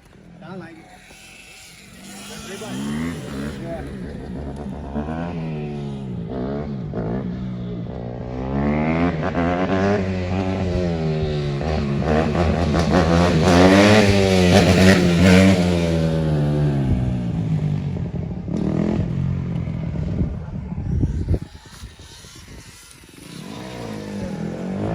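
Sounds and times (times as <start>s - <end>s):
motorcycle engine revving: 0.0s - 24.9s.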